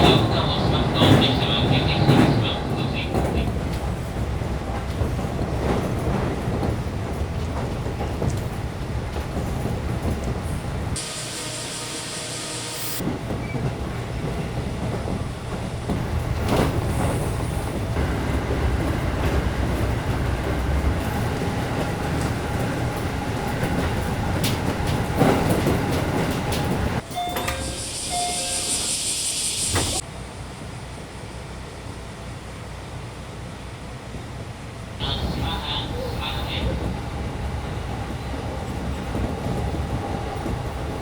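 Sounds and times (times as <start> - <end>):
train rumbling on rails: 0.0 - 41.0
wheels clicking over rail joints: 13.3 - 27.6.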